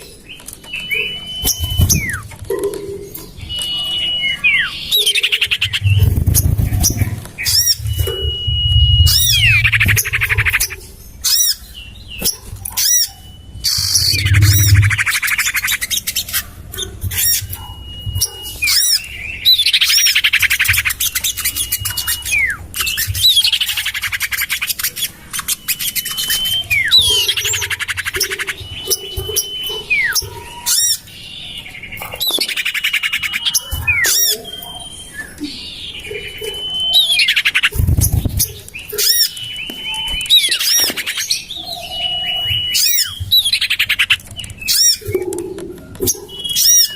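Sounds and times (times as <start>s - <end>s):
bird harsh scolding chatter: 0.0s - 46.9s
bird held whistles: 0.8s - 2.2s, 3.5s - 11.6s, 12.2s - 16.4s.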